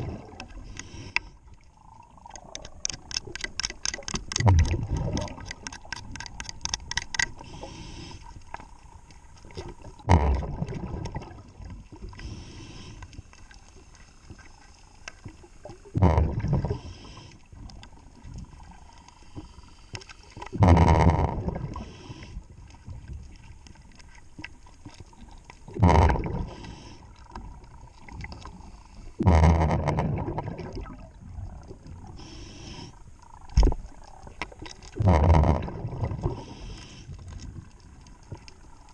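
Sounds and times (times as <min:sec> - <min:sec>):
exhaled bubbles rushing: 0:00.0 - 0:00.7, 0:01.6 - 0:05.8, 0:09.5 - 0:12.1, 0:15.7 - 0:16.9, 0:20.5 - 0:22.0, 0:25.2 - 0:26.6, 0:29.2 - 0:32.2, 0:33.3 - 0:36.5.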